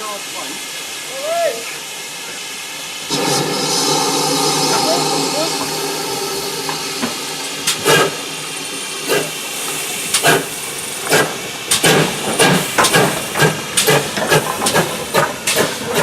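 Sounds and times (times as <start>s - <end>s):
steam hissing: 0.0s - 16.0s
steam locomotive exhaust beats: 2.8s - 16.0s.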